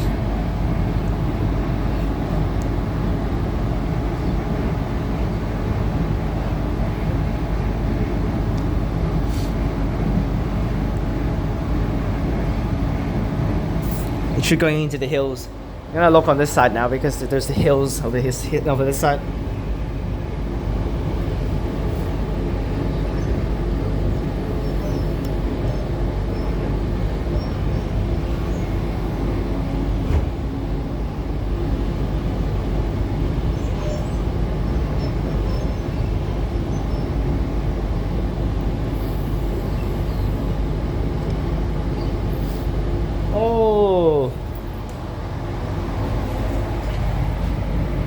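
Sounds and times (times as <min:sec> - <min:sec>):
train wheels rumbling on rail: 0:00.0 - 0:43.5, 0:44.4 - 0:48.0.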